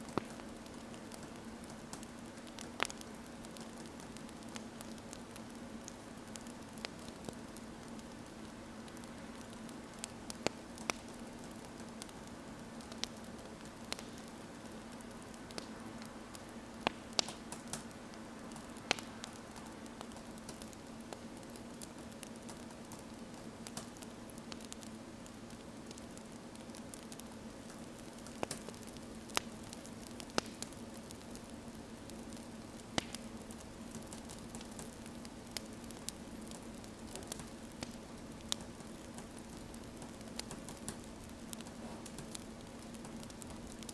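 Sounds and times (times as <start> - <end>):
soft fire hiss: 0.0 - 43.9
wood fire popping: 0.0 - 43.9.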